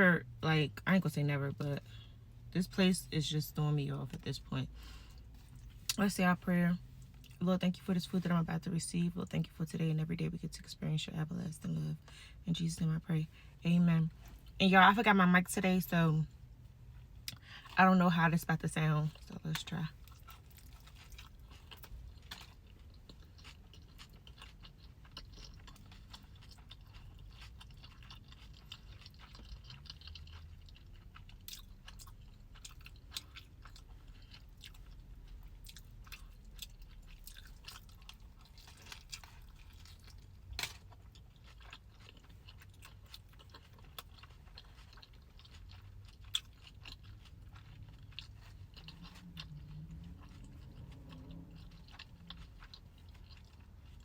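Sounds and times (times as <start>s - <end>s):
chewing and biting: 19.1s - 54.0s.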